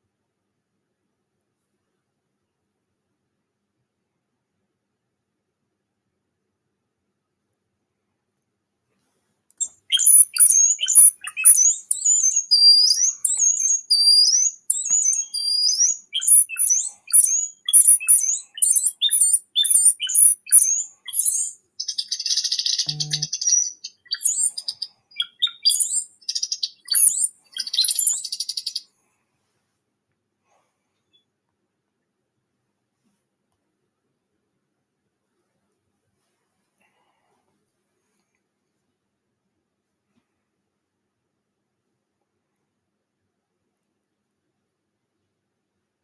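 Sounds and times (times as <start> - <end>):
songbird singing: 9.6 - 28.9.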